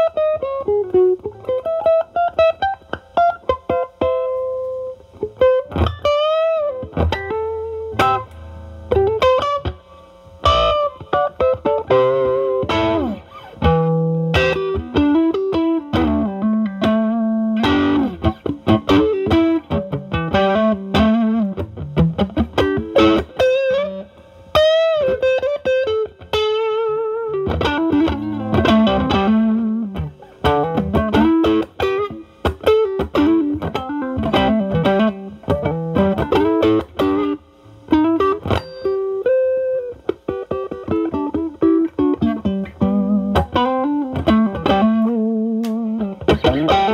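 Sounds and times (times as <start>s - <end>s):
overdriven electric guitar blues lead: 0.0s - 46.9s.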